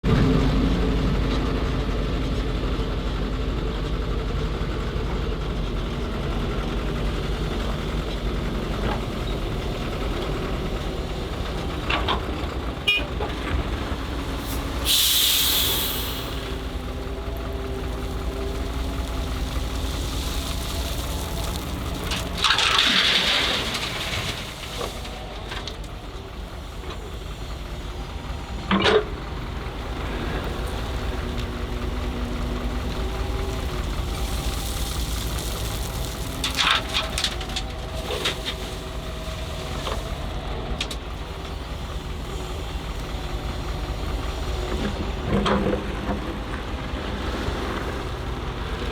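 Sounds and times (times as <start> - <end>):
excavator diesel engine: 0.0 - 48.9
hissing air bursts: 14.4 - 16.9.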